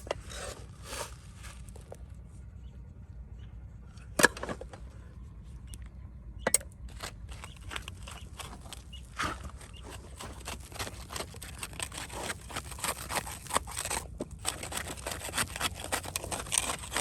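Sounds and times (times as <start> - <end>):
steady low rumble: 0.0 - 12.4.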